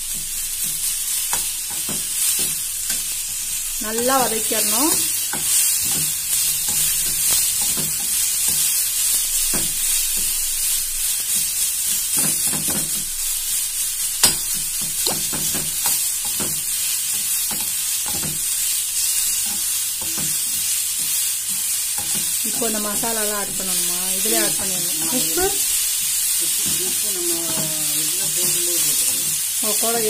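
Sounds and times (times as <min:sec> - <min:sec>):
food sizzling in hot oil: 0:00.0 - 0:30.0
spatula scraping and knocking pan: 0:00.1 - 0:08.7, 0:14.2 - 0:18.6, 0:19.3 - 0:29.4.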